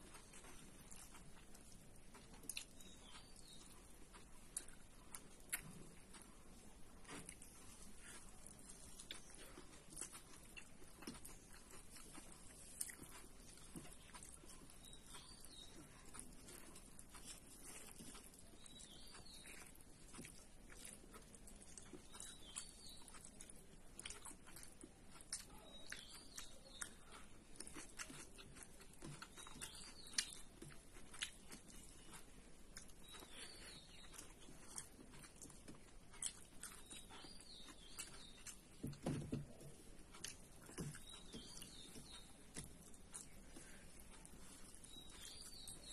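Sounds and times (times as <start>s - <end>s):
person chewing and biting: 0.0s - 45.9s.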